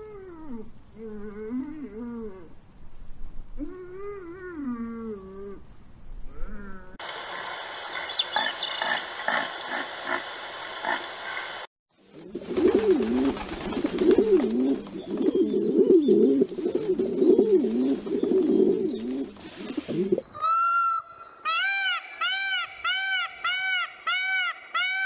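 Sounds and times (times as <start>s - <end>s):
pigeons cooing: 12.3s - 20.2s.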